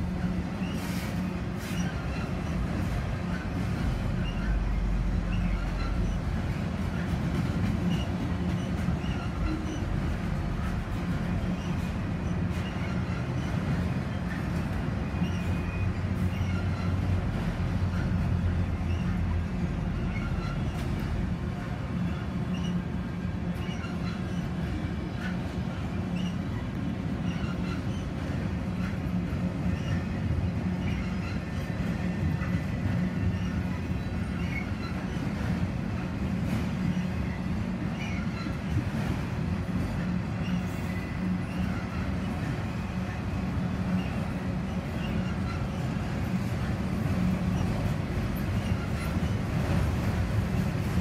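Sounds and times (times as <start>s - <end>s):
train wheels rumbling on a bridge: 0.0s - 51.0s
faint wheel squeals: 0.5s - 3.5s, 4.1s - 7.0s, 7.8s - 10.2s, 15.0s - 17.2s, 17.9s - 21.2s, 22.0s - 22.9s, 23.6s - 28.2s, 28.8s - 35.4s, 36.8s - 38.6s, 40.4s - 42.4s, 43.9s - 46.4s.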